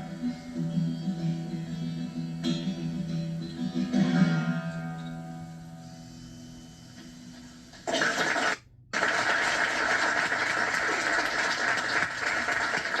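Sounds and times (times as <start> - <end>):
audience applause: 7.9 - 13.0.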